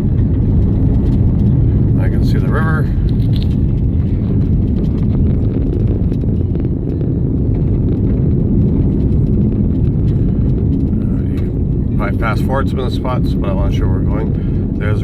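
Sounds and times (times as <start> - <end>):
vehicle rumbling on rough road: 0.0 - 15.0
small clicks and rattles: 2.5 - 12.0.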